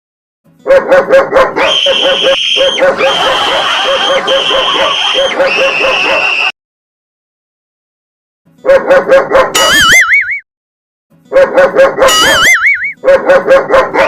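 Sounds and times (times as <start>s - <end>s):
dog barking: 0.6s - 6.5s, 8.6s - 9.9s, 11.3s - 14.0s.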